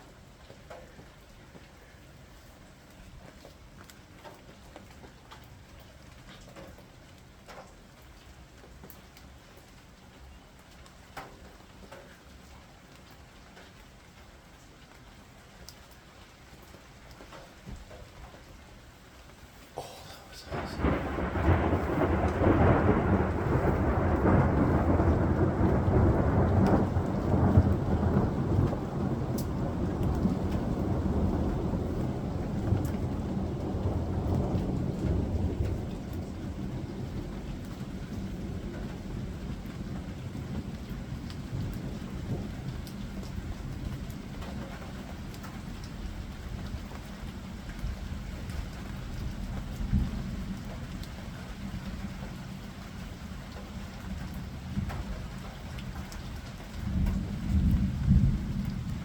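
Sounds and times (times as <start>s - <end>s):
steady rain: 0.0s - 59.0s
thunder rumbling: 19.8s - 44.0s, 56.8s - 59.0s.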